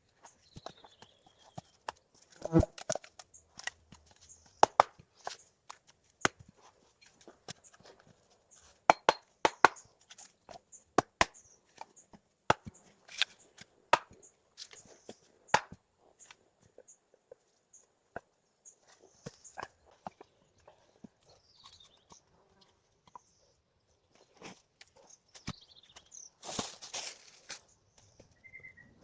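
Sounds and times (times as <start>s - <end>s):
dry sticks snapping: 12.5s - 14.8s.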